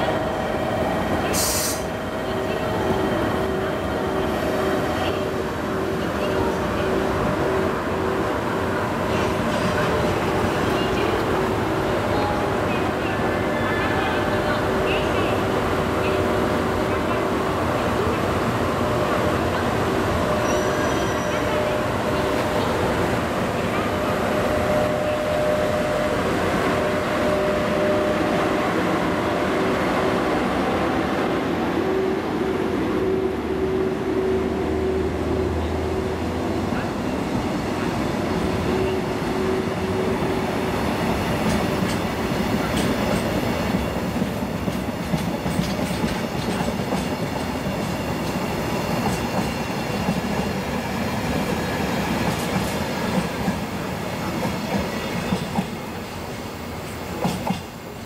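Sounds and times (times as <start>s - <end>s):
train wheels rumbling on rail: 34.7s - 58.0s.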